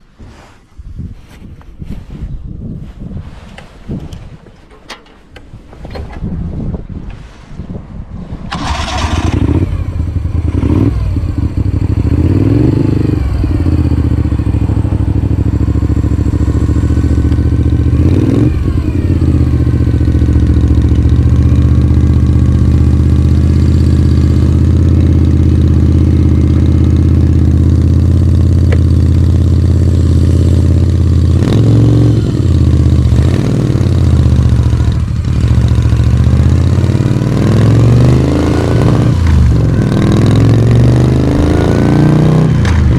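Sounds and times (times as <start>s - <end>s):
motorcycle engine revving: 8.5s - 42.9s.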